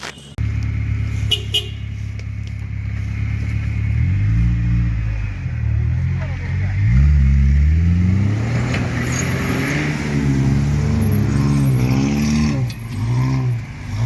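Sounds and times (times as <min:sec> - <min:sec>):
vehicle engine revving hard: 0:05.8 - 0:14.0.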